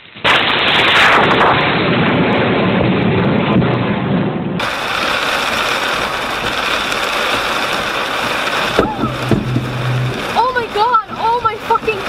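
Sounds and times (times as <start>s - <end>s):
lightning cracks: 0.0s - 12.0s
heavy rain on car roof: 4.6s - 12.0s.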